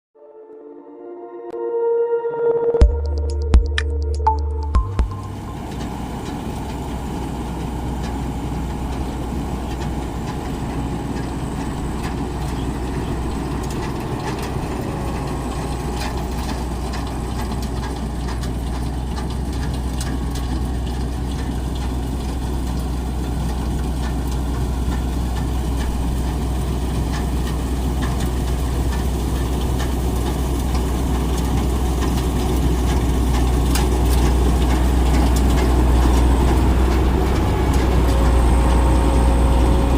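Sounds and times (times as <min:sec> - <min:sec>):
harvester engine droning: 0:01.5 - 0:39.9.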